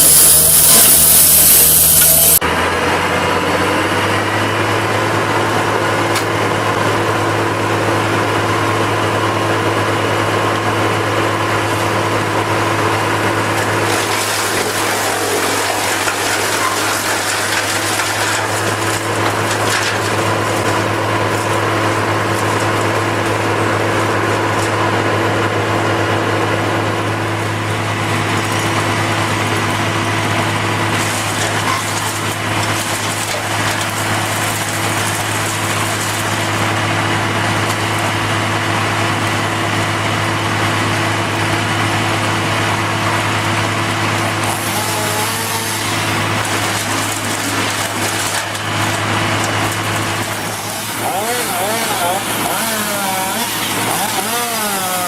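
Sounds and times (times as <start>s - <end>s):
broad hiss: 0.0s - 2.4s
engine running with low hum: 0.0s - 55.0s.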